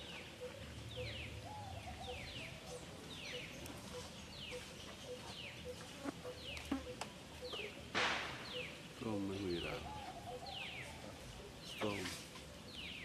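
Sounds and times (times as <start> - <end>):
low hooting bird call: 0.0 - 4.1, 9.6 - 11.2
bird chirping: 0.0 - 13.0.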